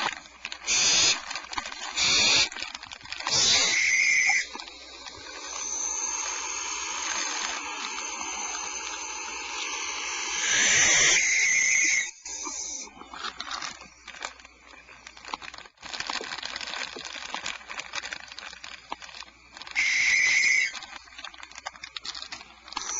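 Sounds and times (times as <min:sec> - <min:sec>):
owl chicks hissing calls: 0:00.6 - 0:01.3, 0:01.9 - 0:02.6, 0:03.3 - 0:12.9, 0:19.7 - 0:20.8.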